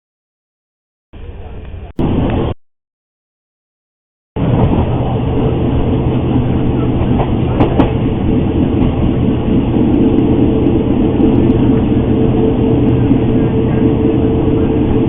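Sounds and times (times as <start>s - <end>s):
train running with rumble: 1.2s - 2.5s, 4.4s - 15.0s.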